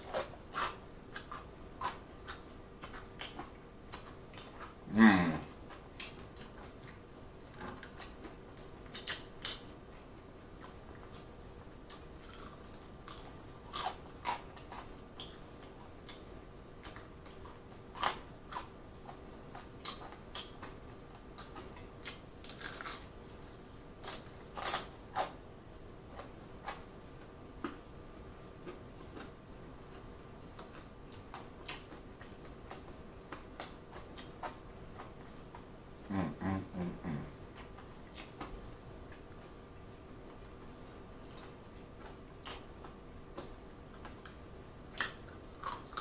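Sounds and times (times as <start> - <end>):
crunching fried chicken: 0.0 - 16.2, 16.8 - 25.4, 41.2 - 46.0.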